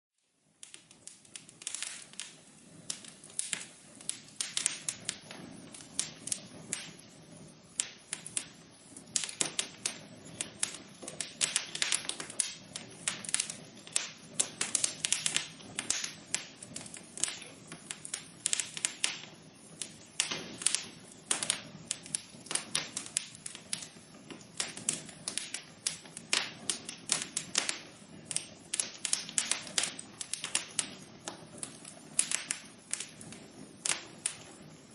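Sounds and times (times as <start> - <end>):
low rush of flames: 0.2 - 34.9
wood fire crackling and popping: 0.2 - 34.9.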